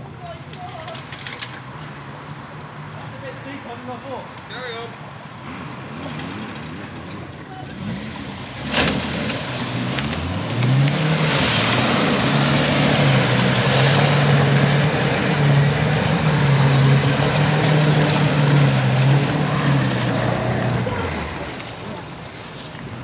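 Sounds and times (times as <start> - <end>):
engine revving: 5.4 - 22.0
water churning: 5.5 - 23.0.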